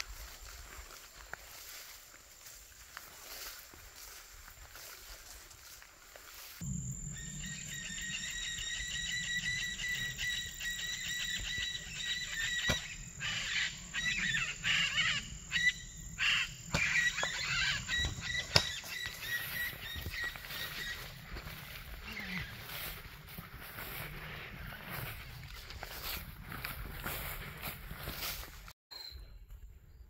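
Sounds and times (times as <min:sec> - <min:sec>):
birds chirping and calling: 0:07.1 - 0:25.2.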